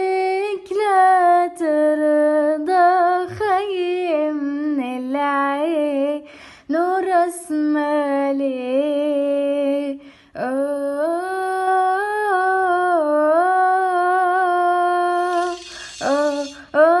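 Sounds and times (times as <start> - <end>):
short breath: 6.2 - 6.7, 10.0 - 10.4, 15.2 - 16.8
woman humming: 15.0 - 17.0.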